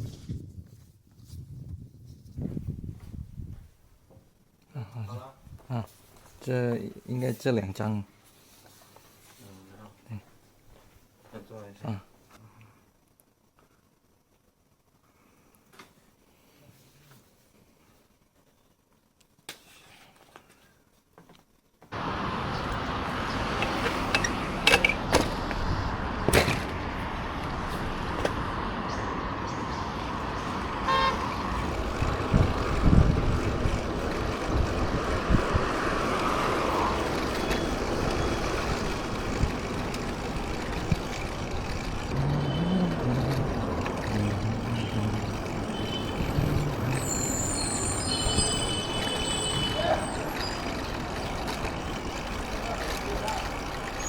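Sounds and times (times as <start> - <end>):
road traffic: 21.9 - 54.0
car horn toot: 30.7 - 33.0, 42.2 - 50.6.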